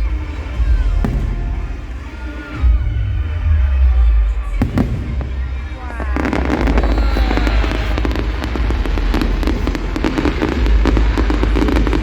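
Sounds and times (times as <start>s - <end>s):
deep rumble: 0.0s - 12.0s
fireworks bangs: 0.0s - 12.0s
fireworks crackling: 0.0s - 12.0s
falling whistles: 4.6s - 8.5s.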